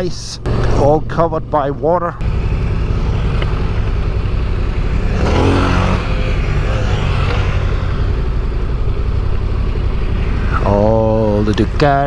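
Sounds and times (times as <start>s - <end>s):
motorcycle engines running: 0.0s - 12.0s.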